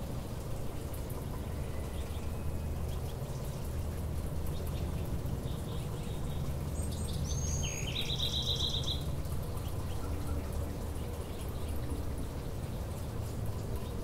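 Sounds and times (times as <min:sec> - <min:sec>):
songbird singing with trill: 0:04.5 - 0:10.5.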